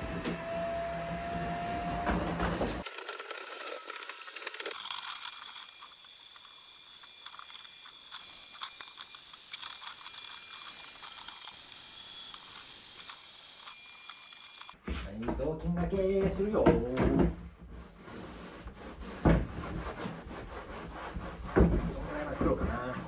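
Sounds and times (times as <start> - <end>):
vacuum cleaner running: 0.0 - 2.8.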